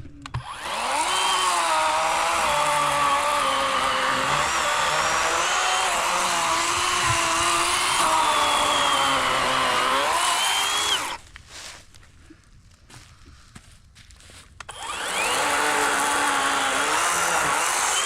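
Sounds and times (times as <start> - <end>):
electric chainsaw cutting log: 0.3 - 11.2, 14.6 - 18.0.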